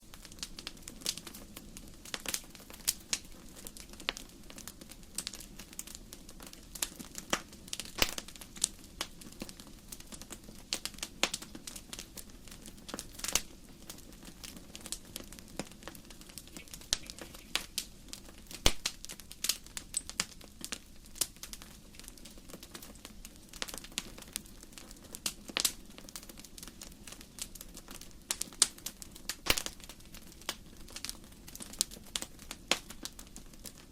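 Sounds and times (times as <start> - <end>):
logs crackling and popping: 0.0 - 33.9
low rumble of flames: 0.0 - 33.9.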